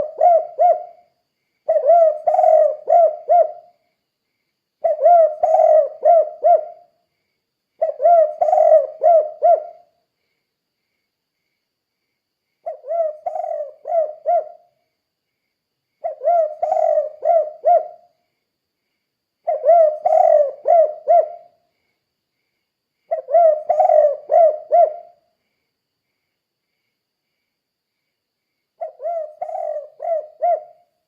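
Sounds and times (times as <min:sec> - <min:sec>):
dove cooing: 0:00.0 - 0:01.1, 0:01.7 - 0:03.8, 0:04.8 - 0:06.9, 0:07.8 - 0:09.9, 0:12.6 - 0:14.7, 0:16.0 - 0:18.1, 0:19.4 - 0:21.6, 0:23.1 - 0:25.2, 0:28.8 - 0:30.9.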